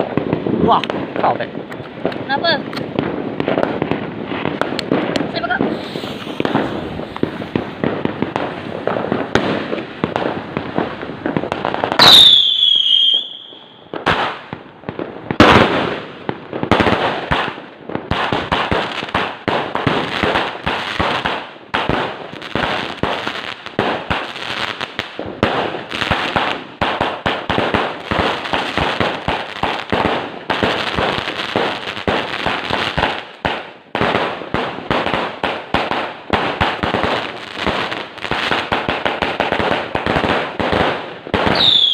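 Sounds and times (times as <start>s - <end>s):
fireworks shots crackling: 0.0s - 41.9s
falling firework whistle: 12.0s - 13.9s, 41.5s - 41.9s.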